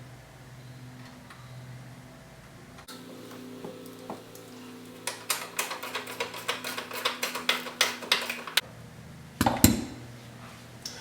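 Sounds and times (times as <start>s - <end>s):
ratchet wrench clicking: 5.0s - 8.6s.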